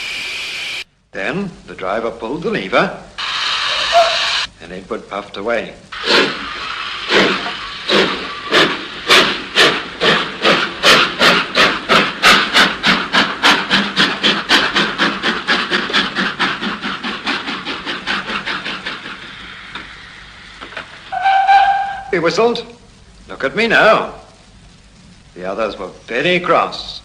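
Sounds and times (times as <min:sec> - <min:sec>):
steam locomotive chuffing: 0:06.0 - 0:22.5.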